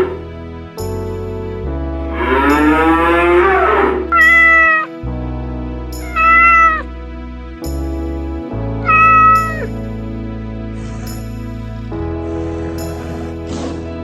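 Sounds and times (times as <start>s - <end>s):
background music: 0.0s - 14.0s
cat meowing: 4.1s - 4.9s, 6.0s - 6.8s, 8.8s - 9.7s.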